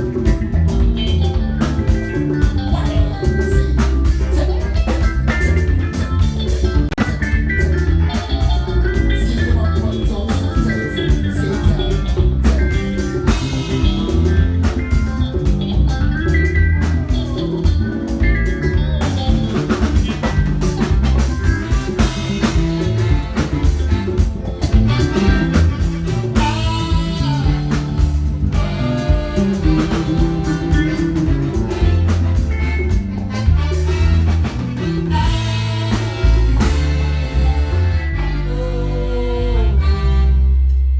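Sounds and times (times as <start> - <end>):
band playing: 0.0 - 40.9
person singing: 2.2 - 5.5, 8.8 - 14.6.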